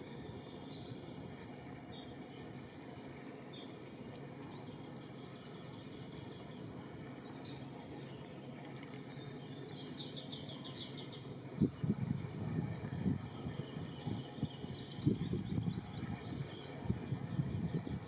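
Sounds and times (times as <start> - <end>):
low background noise: 0.0 - 18.0.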